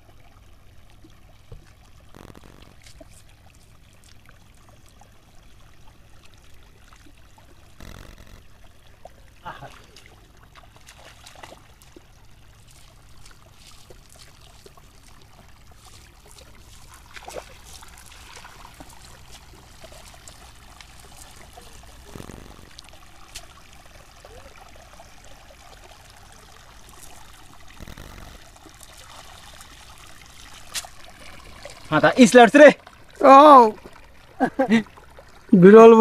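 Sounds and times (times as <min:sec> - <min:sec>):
small splashes and drips: 0:00.0 - 0:35.6
water trickling and pouring: 0:00.0 - 0:36.0
large water splashes: 0:07.0 - 0:35.7.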